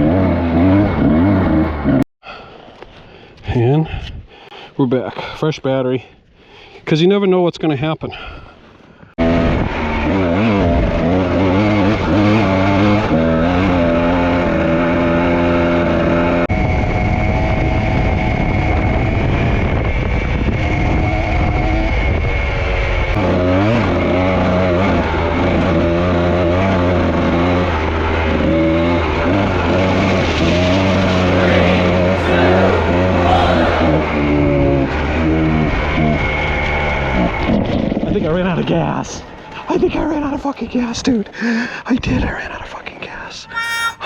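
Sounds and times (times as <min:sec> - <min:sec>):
dirt bike engine revving: 0:00.0 - 0:02.0, 0:09.2 - 0:16.5, 0:23.1 - 0:37.4
rushing noise: 0:29.5 - 0:35.0.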